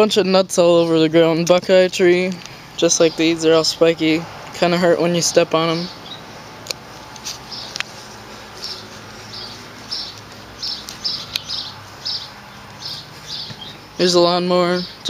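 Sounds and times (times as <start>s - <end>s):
small bird chirping: 5.2s - 15.0s
sharp clicks: 6.6s - 8.0s.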